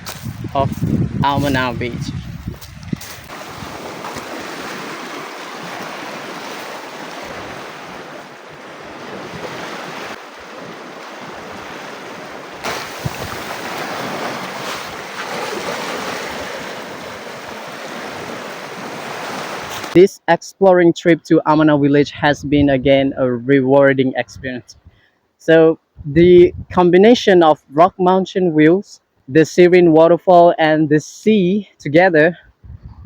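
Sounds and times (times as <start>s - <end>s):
surf waves washing ashore: 3.0s - 20.0s.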